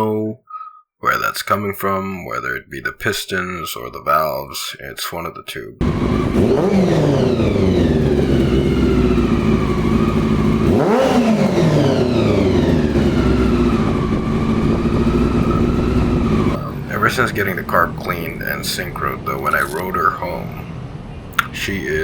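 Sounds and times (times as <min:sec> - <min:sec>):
motorcycle engine revving: 0:05.8 - 0:22.0.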